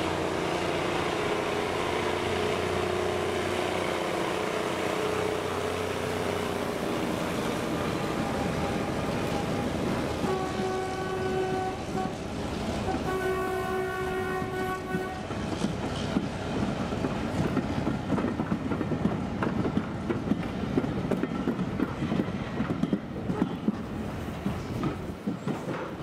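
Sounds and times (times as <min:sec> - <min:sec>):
diesel locomotive horn: 0:08.7 - 0:15.4
train wheels clattering on rails: 0:14.0 - 0:26.0.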